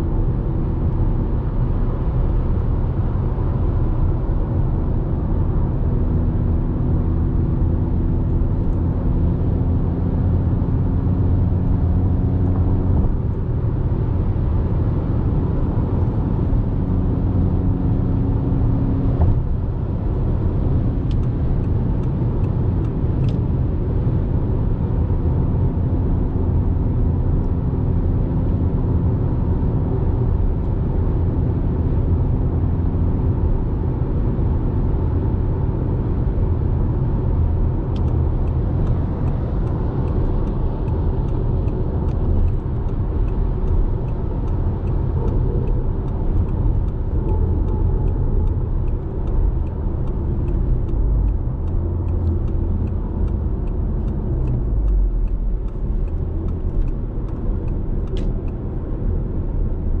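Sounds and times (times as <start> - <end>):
car engine and exhaust rumble: 0.0 - 60.0
tyre and road noise: 33.2 - 60.0
faint light ticking: 37.9 - 58.8.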